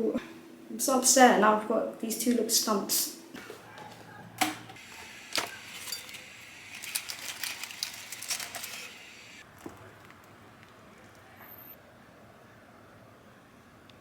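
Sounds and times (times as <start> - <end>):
clatter of small objects handled: 4.9 - 10.2.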